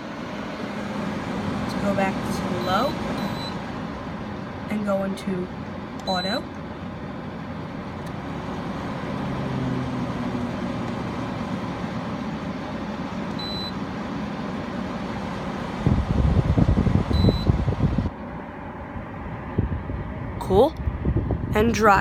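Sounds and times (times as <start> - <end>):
air conditioner fan blowing: 0.0 - 22.0
low thumping rumble: 15.4 - 18.1, 18.8 - 22.0.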